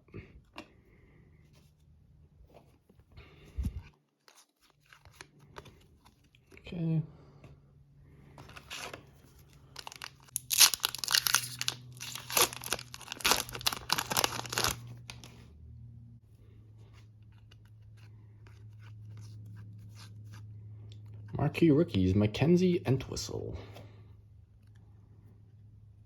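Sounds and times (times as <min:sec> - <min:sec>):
low steady hum: 0:05.0 - 0:26.0
foil wrapper tearing and crinkling: 0:09.7 - 0:15.4.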